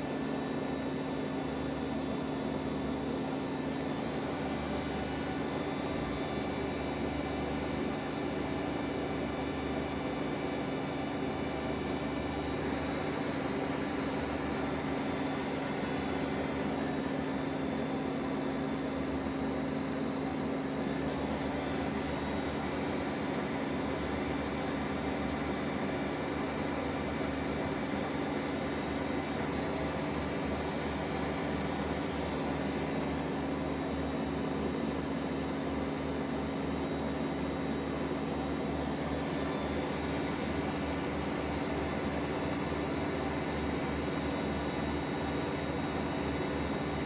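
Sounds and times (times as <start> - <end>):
lathe humming: 0.2 - 35.1.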